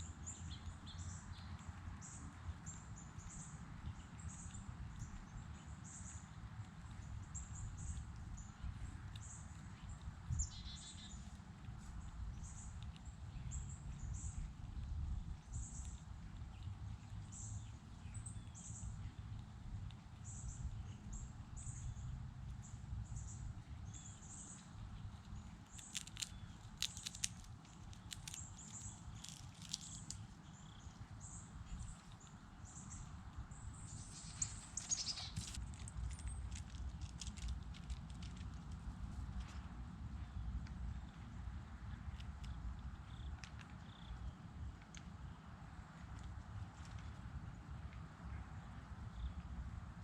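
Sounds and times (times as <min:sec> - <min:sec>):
small birds chirping: 0:00.0 - 0:49.6
low steady rumble: 0:00.0 - 0:50.0.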